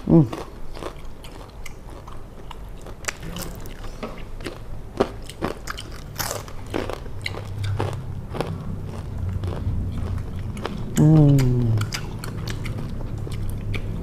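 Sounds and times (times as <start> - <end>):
people crunching snacks: 0.0 - 14.0.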